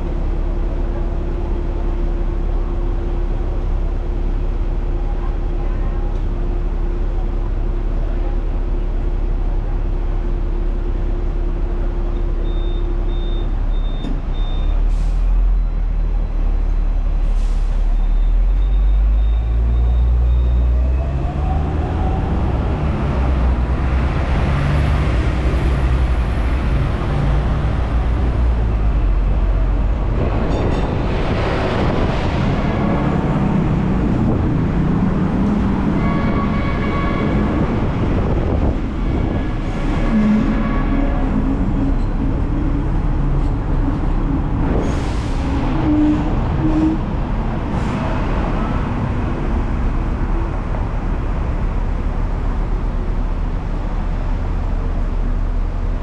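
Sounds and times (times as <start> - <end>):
tram wheels rumbling on rail: 0.0 - 56.0.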